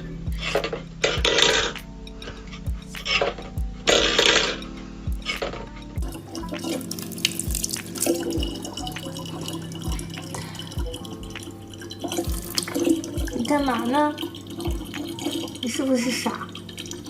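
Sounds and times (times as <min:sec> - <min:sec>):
background music with low beat: 0:00.0 - 0:17.0
water splashing and dripping: 0:05.2 - 0:17.0.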